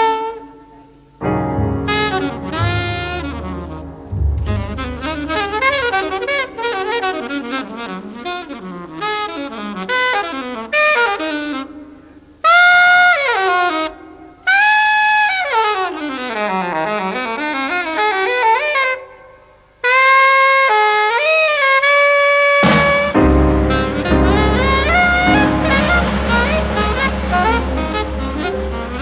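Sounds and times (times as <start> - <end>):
alto saxophone playing jazz: 1.2 - 11.7, 22.4 - 29.0.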